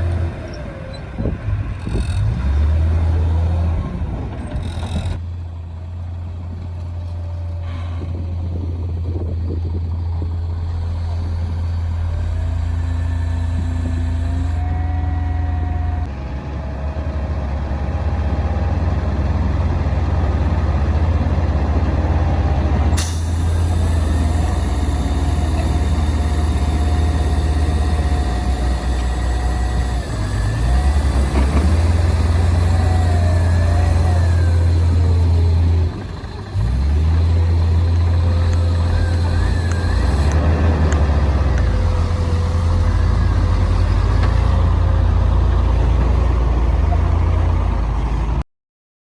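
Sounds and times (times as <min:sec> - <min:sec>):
bulldozer diesel engine droning: 0:00.0 - 0:48.4
thin whining tones: 0:11.0 - 0:17.4, 0:23.0 - 0:36.2, 0:37.9 - 0:40.4.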